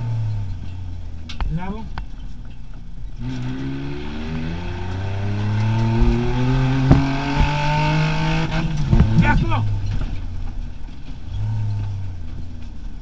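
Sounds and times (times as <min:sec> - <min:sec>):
car engine from inside cab: 0:00.0 - 0:13.0
sharp knocks: 0:05.6 - 0:09.3.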